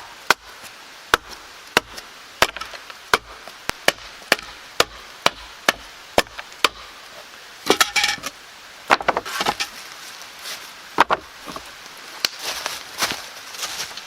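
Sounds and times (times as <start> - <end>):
clattering wooden knocks: 7.7 - 9.8, 11.0 - 11.6.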